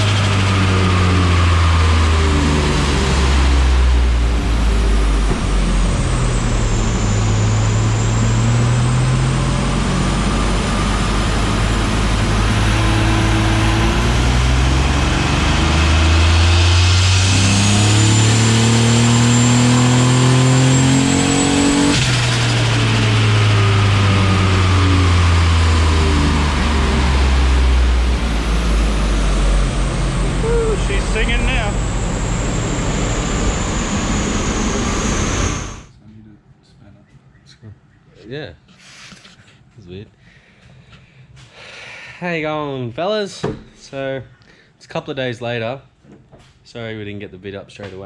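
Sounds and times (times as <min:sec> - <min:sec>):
car engine revving hard: 0:00.0 - 0:35.9
high-pitched whine: 0:00.0 - 0:35.9.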